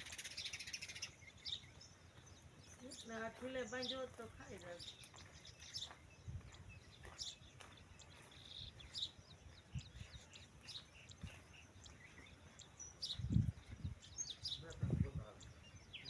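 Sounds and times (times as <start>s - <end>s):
faint bird chirps: 0.0s - 16.0s
soft low thumps: 13.0s - 14.1s.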